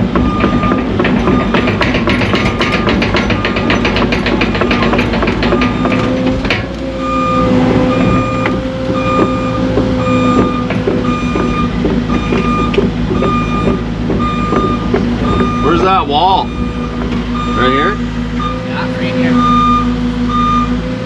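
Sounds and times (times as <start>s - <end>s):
tracks clattering: 0.0s - 19.9s
excavator engine running: 0.0s - 21.0s
steady machine whine: 0.0s - 21.0s
travel alarm beeping: 0.2s - 1.9s, 2.5s - 3.9s, 5.4s - 6.2s, 7.0s - 20.8s
knock: 0.2s - 6.6s.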